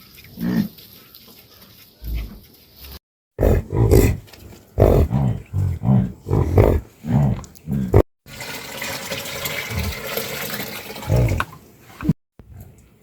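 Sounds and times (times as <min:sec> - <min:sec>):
water rushing: 0:08.3 - 0:11.6.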